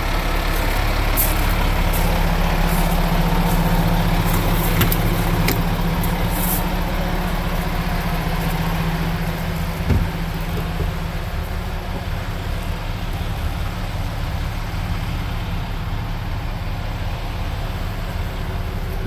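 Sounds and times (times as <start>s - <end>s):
diesel truck engine idling: 0.0s - 19.0s
short low thump: 9.7s - 11.2s.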